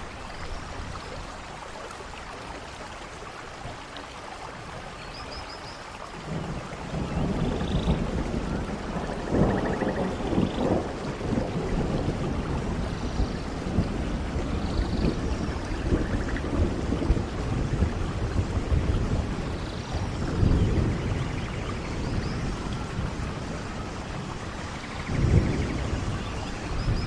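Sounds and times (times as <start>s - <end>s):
steady rain: 0.0s - 27.0s
rolling thunder: 6.2s - 27.0s.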